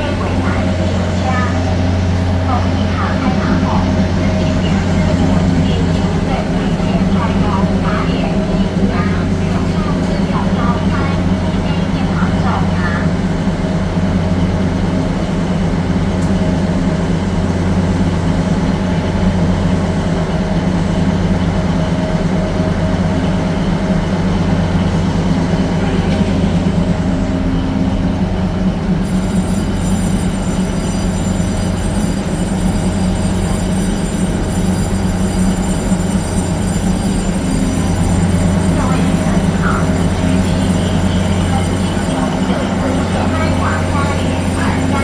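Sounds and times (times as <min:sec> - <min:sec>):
train machinery hum: 0:00.0 - 0:45.0
thin high whining tones: 0:28.9 - 0:45.0.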